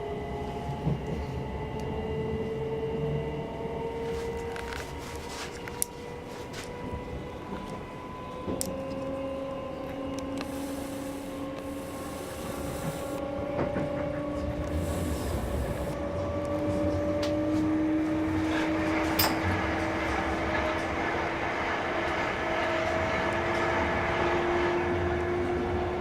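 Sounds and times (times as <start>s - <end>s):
train wheels rumbling on rails: 0.0s - 26.0s
electric motor whine rising: 8.7s - 13.3s, 14.3s - 17.2s.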